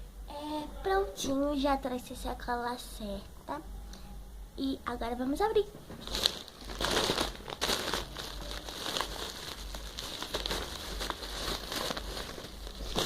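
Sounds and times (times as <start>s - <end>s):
bag crinkling and rustling: 5.9s - 13.0s.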